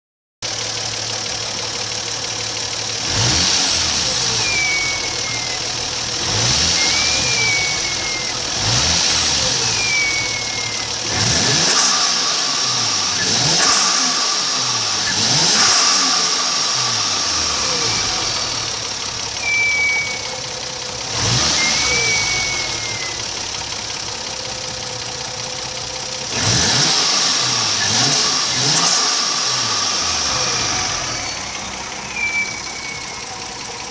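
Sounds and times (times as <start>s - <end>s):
car engine revving: 2.1s - 33.9s
turbo whistle: 4.0s - 12.0s, 15.0s - 18.8s, 19.4s - 23.4s, 30.3s - 33.5s.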